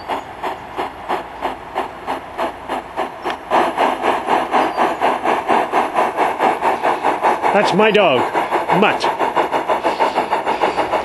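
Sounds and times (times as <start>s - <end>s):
model steam locomotive chuffs: 0.0s - 11.0s.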